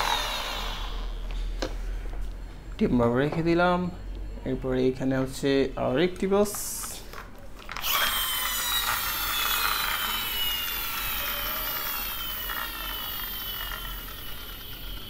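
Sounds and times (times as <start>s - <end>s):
toy friction motor whirring: 0.0s - 1.2s, 7.8s - 15.0s.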